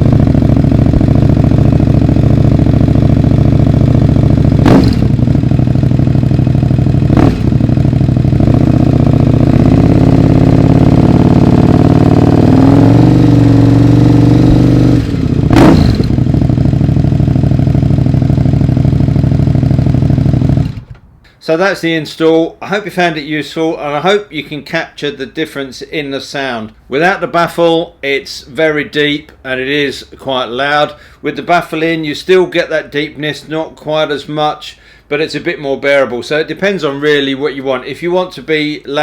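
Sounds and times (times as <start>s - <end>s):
motorcycle engine idling and revving: 0.0s - 21.0s.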